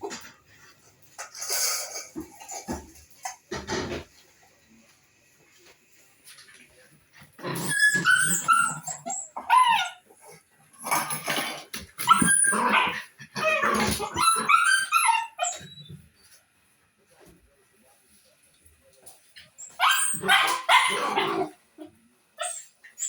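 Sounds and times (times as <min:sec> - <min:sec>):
dog barking and whining: 0:07.6 - 0:10.1, 0:12.0 - 0:15.8, 0:19.6 - 0:21.6.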